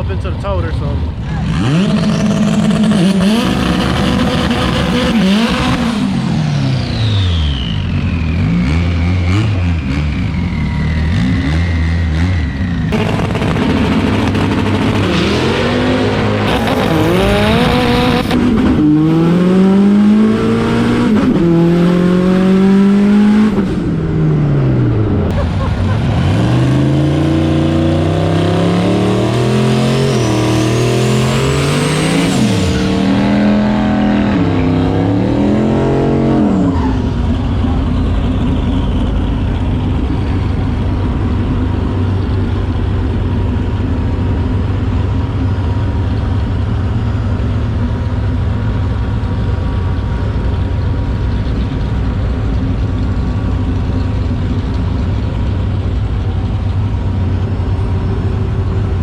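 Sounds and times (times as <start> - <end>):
low engine rumble: 0.0 - 4.6, 6.0 - 18.8, 23.6 - 28.2, 36.4 - 59.0
turbocharged engine revving with whine: 0.0 - 59.0.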